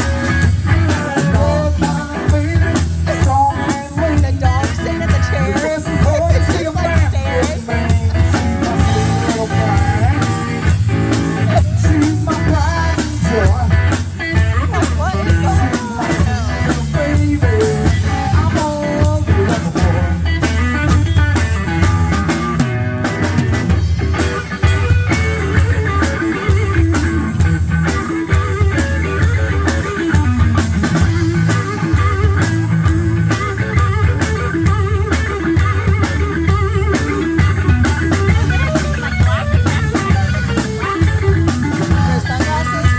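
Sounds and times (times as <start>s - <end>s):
rock band playing blues-rock: 0.0s - 42.9s.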